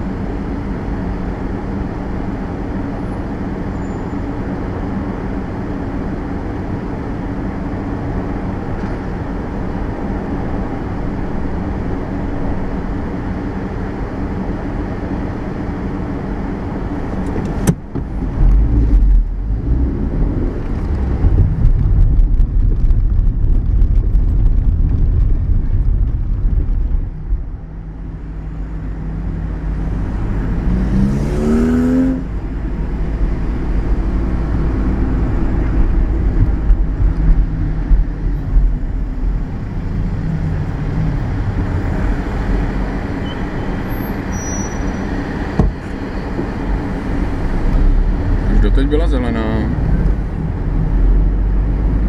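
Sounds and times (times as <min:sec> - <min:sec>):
road noise: 0:00.0 - 0:52.0
engine revving with rising whine: 0:18.2 - 0:22.3, 0:29.0 - 0:37.8.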